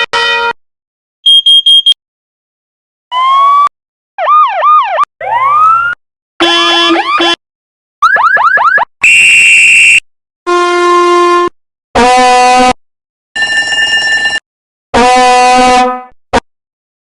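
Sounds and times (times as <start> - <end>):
electronic horn and buzzer tones: 6.4 - 7.4, 9.0 - 12.8, 14.9 - 16.5.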